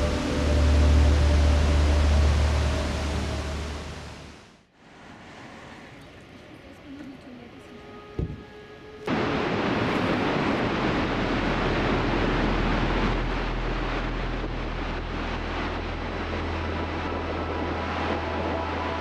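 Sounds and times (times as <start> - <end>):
waterfall rushing: 0.0 - 4.5, 9.1 - 19.0
low steady hum: 0.0 - 19.0.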